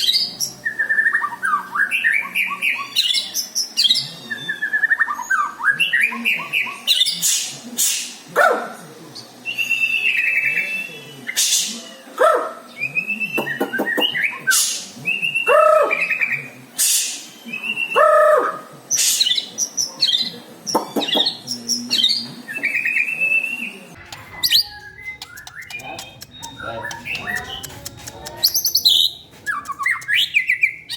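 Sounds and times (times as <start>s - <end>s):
songbird singing varied chirps: 19.2s - 30.9s.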